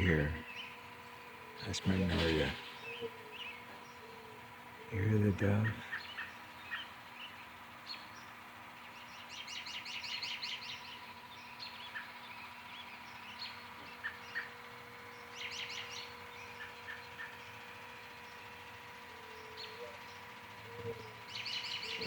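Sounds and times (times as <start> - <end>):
faint steady hum: 0.0 - 22.0
songbirds chirping: 0.0 - 22.0
fast high bird trill: 1.6 - 4.0.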